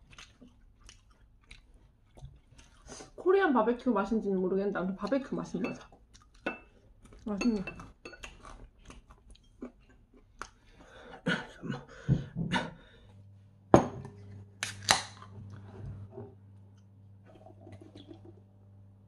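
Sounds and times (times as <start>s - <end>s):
person chewing: 0.0s - 3.2s, 5.9s - 11.0s
low steady hum: 0.0s - 19.0s.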